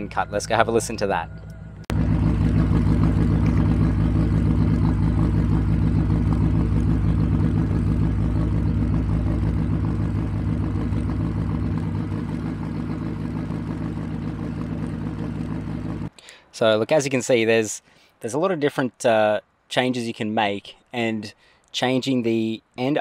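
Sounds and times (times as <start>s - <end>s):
car engine lumpy idle: 0.0s - 16.1s.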